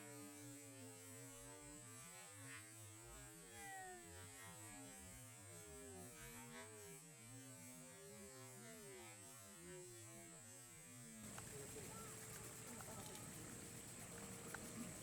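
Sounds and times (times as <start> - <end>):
distant voices murmuring: 11.2 - 15.0
steady high hiss: 11.2 - 15.0.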